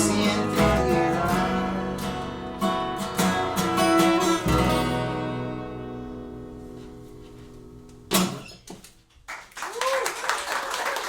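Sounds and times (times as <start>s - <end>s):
acoustic guitar strumming: 0.0s - 8.7s.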